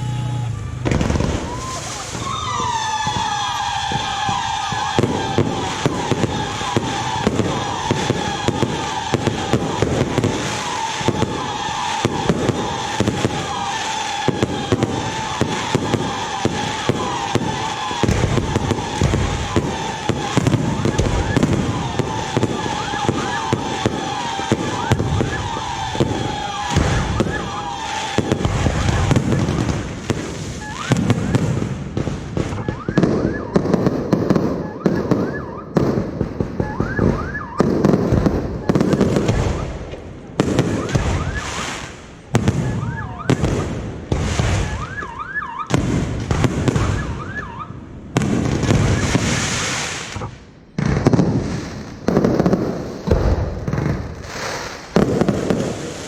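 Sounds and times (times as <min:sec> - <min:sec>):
deep booms with crackling tails: 0:00.8 - 0:01.6
fireworks shells bursting: 0:00.9 - 0:35.4
whistling shells: 0:01.2 - 0:29.7, 0:30.5 - 0:31.4, 0:40.6 - 0:41.9.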